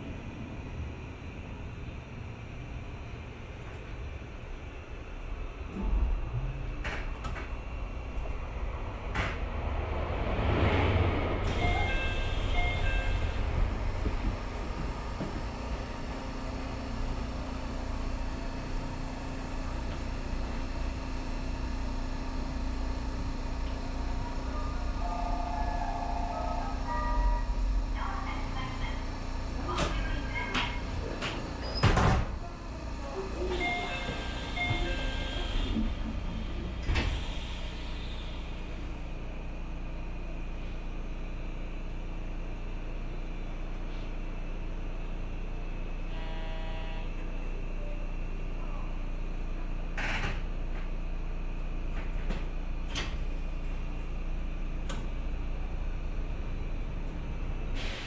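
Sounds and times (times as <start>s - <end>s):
train running hum: 0.0s - 58.0s
train knocks and clacks: 5.8s - 17.5s, 26.2s - 38.2s.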